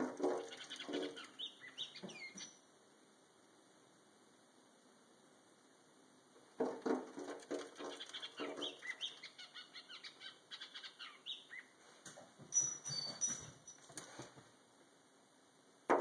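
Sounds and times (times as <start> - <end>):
bird chirping: 0.0 - 2.6, 7.2 - 11.8, 12.5 - 13.8
bird wings flapping against glass: 6.6 - 8.8.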